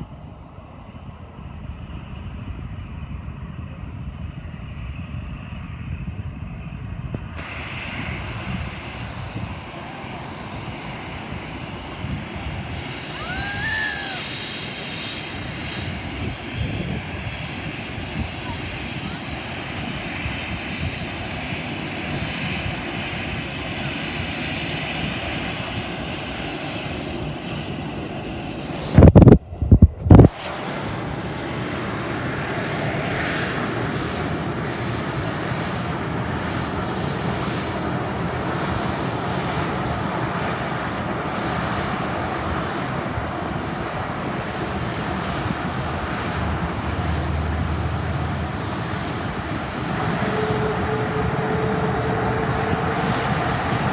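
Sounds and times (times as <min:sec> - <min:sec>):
aircraft engine whine and roar: 0:00.0 - 0:53.9.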